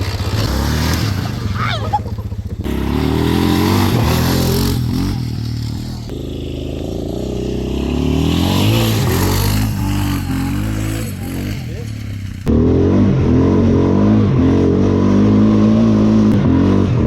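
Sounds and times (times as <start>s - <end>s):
atv engine revving: 0.0s - 17.0s.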